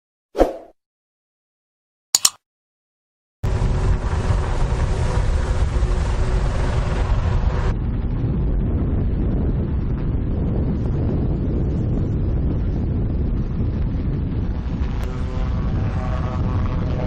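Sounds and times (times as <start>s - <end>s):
short clicks: 2.2s - 2.4s
wind buffeting microphone: 3.5s - 17.0s.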